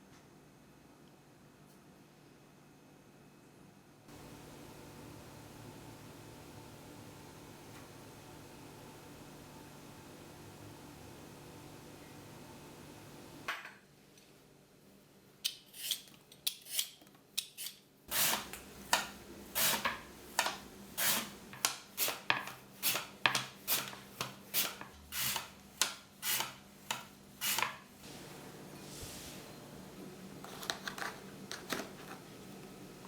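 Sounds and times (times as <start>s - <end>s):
kitchen blade scraping: 15.5s - 27.8s.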